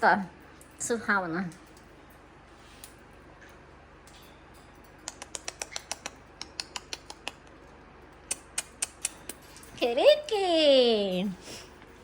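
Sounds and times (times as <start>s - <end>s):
parrot sharp clicks: 5.0s - 7.5s.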